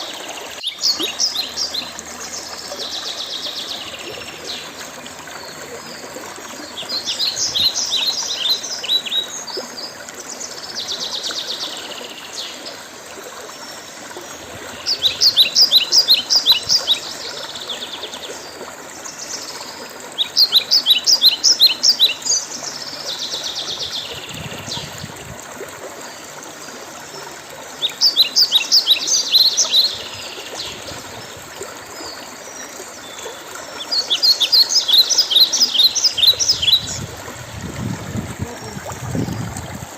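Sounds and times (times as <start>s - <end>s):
songbird trilling: 33.9s - 37.1s.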